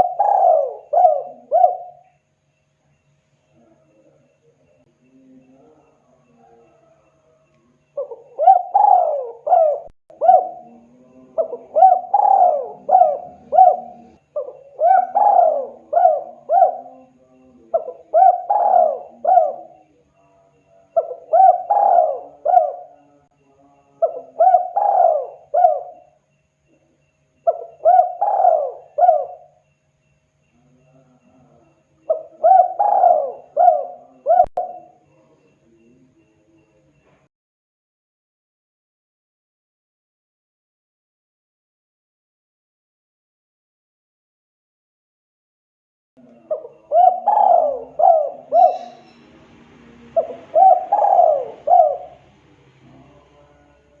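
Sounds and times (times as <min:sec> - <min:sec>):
dove cooing: 0:00.0 - 0:02.2, 0:03.6 - 0:20.0, 0:20.9 - 0:23.2, 0:24.0 - 0:26.2, 0:27.4 - 0:29.6, 0:30.6 - 0:35.4, 0:46.2 - 0:54.0.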